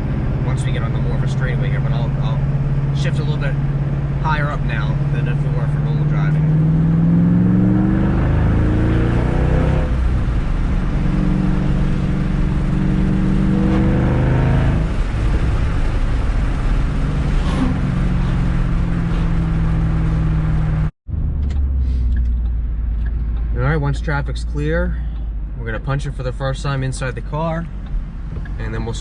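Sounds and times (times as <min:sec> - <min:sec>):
car engine accelerating through gears: 0:00.0 - 0:24.8.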